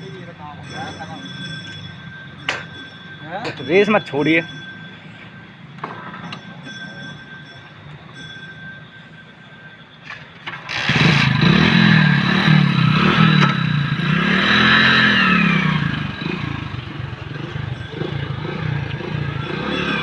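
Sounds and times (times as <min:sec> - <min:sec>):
motorcycle engine revving: 0:10.5 - 0:20.0.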